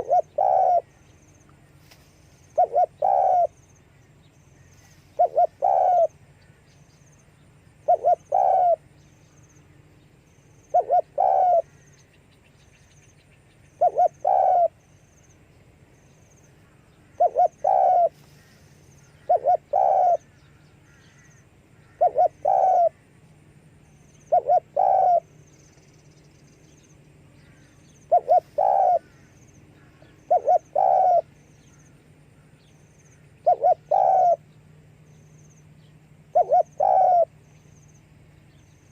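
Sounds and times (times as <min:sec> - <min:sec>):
dove cooing: 0:00.0 - 0:01.0, 0:02.4 - 0:03.6, 0:04.8 - 0:06.2, 0:07.8 - 0:08.9, 0:10.6 - 0:11.8, 0:13.8 - 0:14.8, 0:17.1 - 0:23.0, 0:24.1 - 0:25.6, 0:27.5 - 0:31.8, 0:33.4 - 0:34.4, 0:36.2 - 0:37.4.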